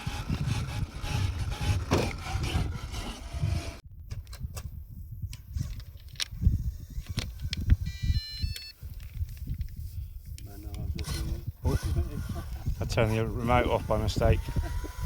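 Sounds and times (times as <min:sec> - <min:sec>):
toy truck motor whining and grinding: 0:00.0 - 0:03.8, 0:10.9 - 0:15.0
low thumps: 0:00.3 - 0:03.6.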